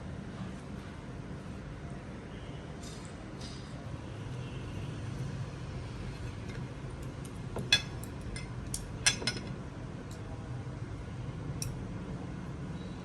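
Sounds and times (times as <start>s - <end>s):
low steady hum: 3.6s - 13.0s
utensils and dishes clinking: 7.6s - 9.6s.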